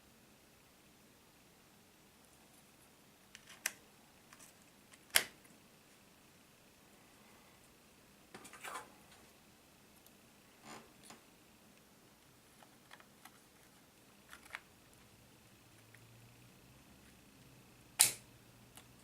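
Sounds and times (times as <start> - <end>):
plastic laptop parts clicking: 12.6 - 14.7.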